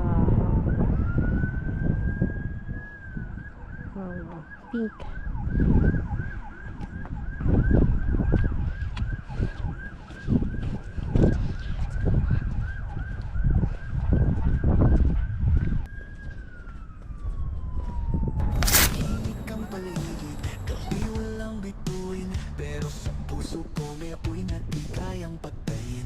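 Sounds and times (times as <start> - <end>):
wind buffeting microphone: 0.0 - 19.6
emergency siren yelping: 0.0 - 23.6
sharp crack: 18.4 - 19.4.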